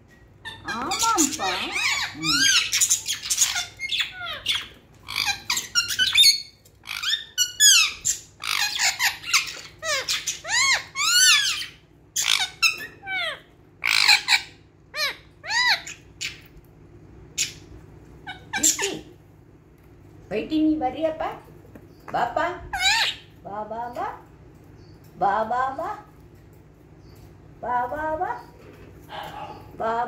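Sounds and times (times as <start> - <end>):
budgerigars chirping and squawking: 0.4 - 16.6, 17.3 - 19.2, 22.7 - 23.4, 28.4 - 29.8.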